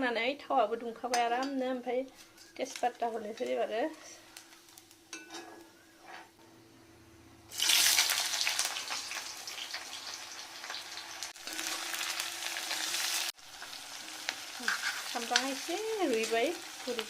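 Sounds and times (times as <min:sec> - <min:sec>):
oil sizzling in a pan: 0:04.2 - 0:05.2, 0:07.5 - 0:17.0.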